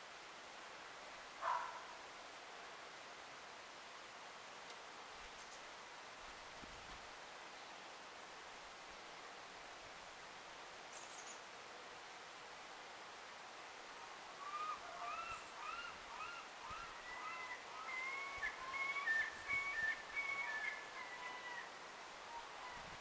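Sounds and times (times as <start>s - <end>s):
bird singing whistled song: 14.6s - 20.8s.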